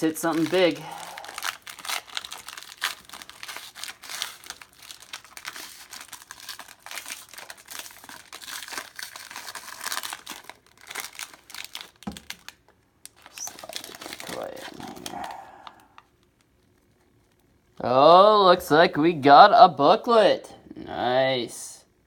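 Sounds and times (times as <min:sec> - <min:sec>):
wrapper tearing and crinkling: 0:00.0 - 0:17.5.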